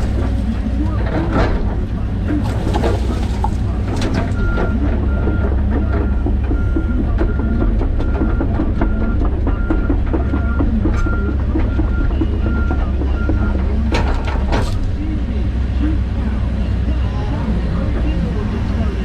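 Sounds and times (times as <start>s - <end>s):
excavator diesel engine: 0.0s - 19.0s
backup alarm beeping: 4.1s - 13.9s.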